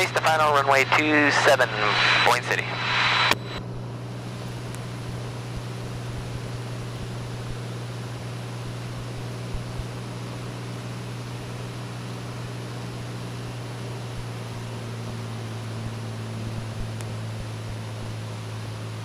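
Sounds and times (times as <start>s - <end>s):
plane engine and propeller droning: 0.0s - 19.0s
rush of air: 1.7s - 3.6s.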